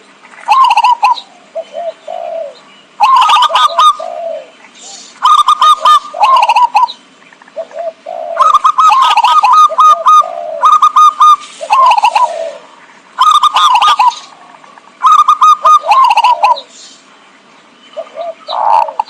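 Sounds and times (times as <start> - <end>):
dove cooing: 0.4 - 16.8, 18.0 - 19.0
high rapid bird chirping: 2.8 - 4.0, 4.6 - 7.7, 8.4 - 19.0.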